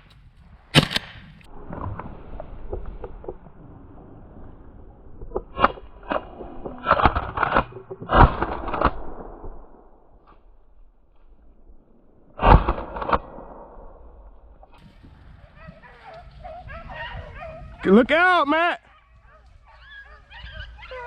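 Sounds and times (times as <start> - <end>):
shotgun shots: 0.7 - 1.4, 12.4 - 13.8.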